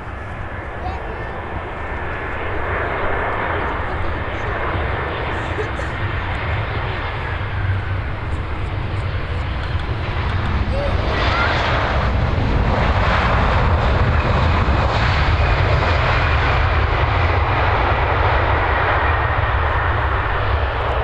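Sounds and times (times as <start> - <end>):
deep rumble: 0.0 - 21.0
jet engines rushing: 0.0 - 21.0.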